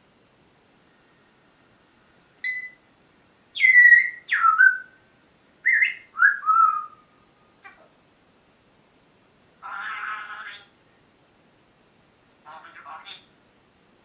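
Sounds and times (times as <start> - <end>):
parrot whistling: 3.6 - 5.0, 5.6 - 7.0.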